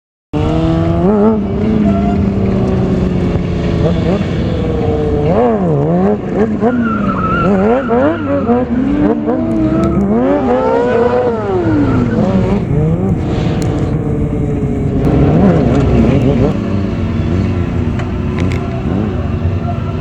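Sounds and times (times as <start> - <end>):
motorcycle engine revving: 0.4 - 20.0.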